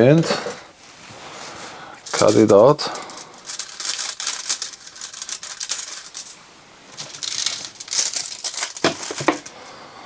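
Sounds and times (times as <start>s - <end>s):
aluminium foil crinkling: 2.0s - 9.6s.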